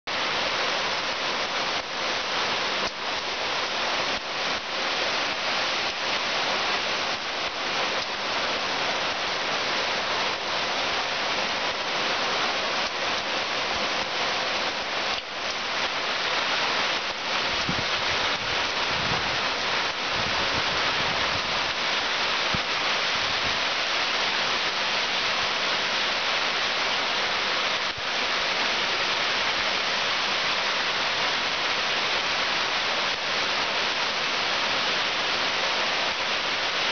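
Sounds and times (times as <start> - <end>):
heavy rain hissing: 0.1 - 36.9
wind gusts on microphone: 16.3 - 23.9.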